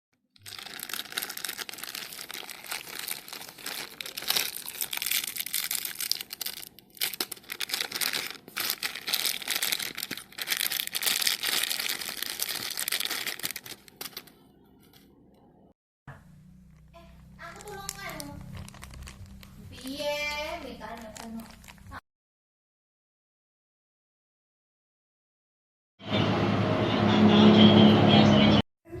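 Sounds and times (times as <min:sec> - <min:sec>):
plastic packaging crinkling: 0:00.4 - 0:14.4, 0:16.6 - 0:22.0.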